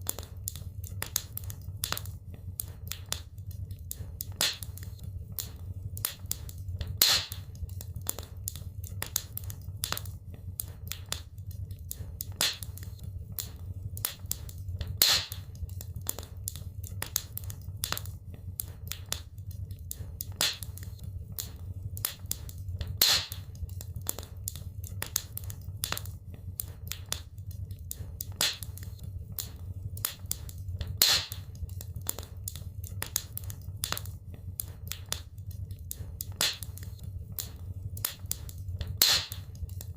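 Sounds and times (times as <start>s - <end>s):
wood fire crackling: 0.0s - 39.9s
loud fire pop: 7.0s - 7.4s, 15.0s - 15.4s, 23.0s - 23.4s, 31.0s - 31.4s, 39.0s - 39.4s.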